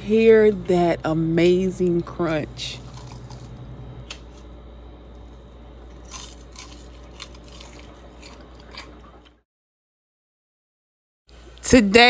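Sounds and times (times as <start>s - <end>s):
steady low hum: 0.0s - 9.4s
person chewing crispy chicken: 2.8s - 4.5s, 5.1s - 9.4s.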